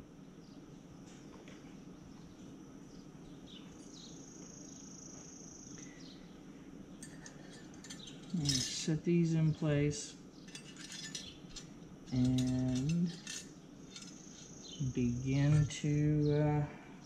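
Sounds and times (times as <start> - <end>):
high bird trill: 7.0 - 9.7, 10.3 - 16.6.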